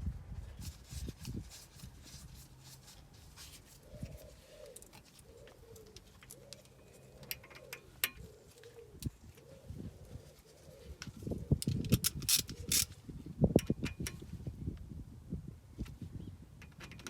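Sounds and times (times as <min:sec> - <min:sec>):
faint bird cooing: 0:03.6 - 0:13.0.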